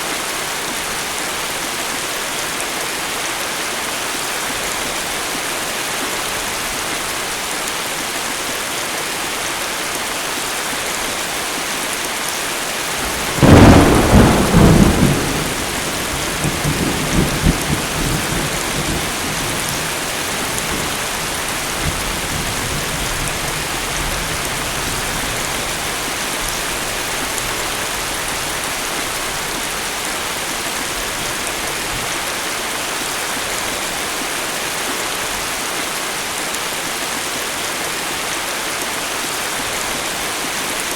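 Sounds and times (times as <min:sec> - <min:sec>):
heavy rain falling: 0:00.0 - 0:40.9
thunderclap rumbling: 0:13.0 - 0:23.1.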